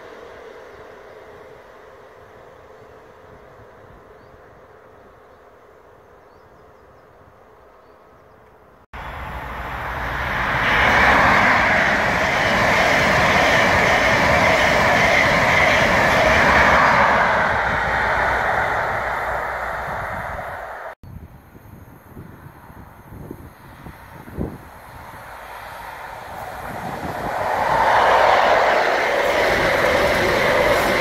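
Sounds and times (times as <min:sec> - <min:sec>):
faint outdoor background: 0:00.0 - 0:31.0
train wheels on rails: 0:08.4 - 0:21.0, 0:23.2 - 0:31.0.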